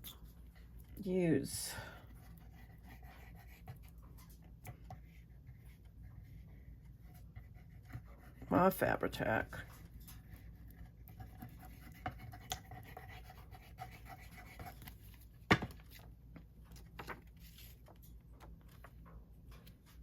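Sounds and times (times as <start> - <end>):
paper rustling: 16.7 - 20.0.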